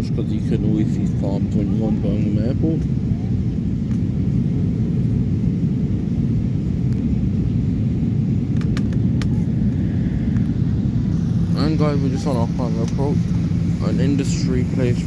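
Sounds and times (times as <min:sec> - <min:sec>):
airplane cabin engine rumble: 0:00.0 - 0:15.0.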